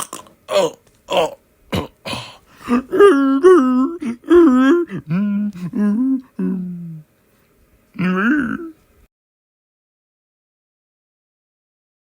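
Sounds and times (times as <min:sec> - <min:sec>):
man moaning or humming: 0:00.5 - 0:07.1, 0:08.0 - 0:08.8.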